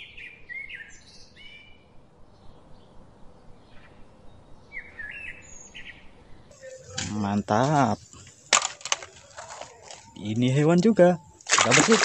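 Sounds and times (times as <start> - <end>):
bird chirping: 0.0 - 8.5.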